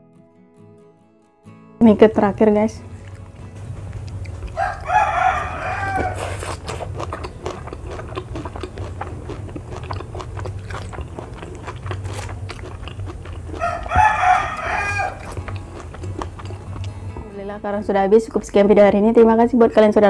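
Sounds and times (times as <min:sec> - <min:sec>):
crunchy chewing of raw vegetables: 0:02.8 - 0:17.2
rooster crowing: 0:04.5 - 0:06.5, 0:13.5 - 0:15.4.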